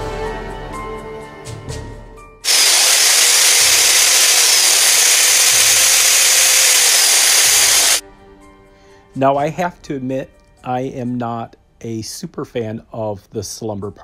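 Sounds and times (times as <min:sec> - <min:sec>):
power drill whirring: 0:02.4 - 0:08.0.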